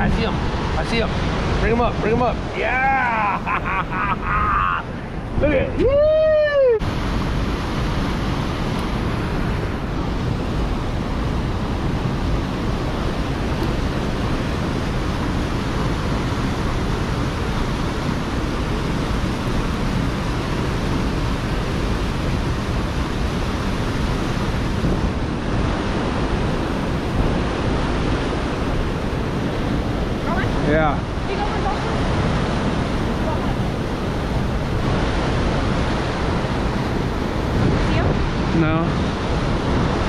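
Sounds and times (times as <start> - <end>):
roar of falling water: 0.0 - 5.0.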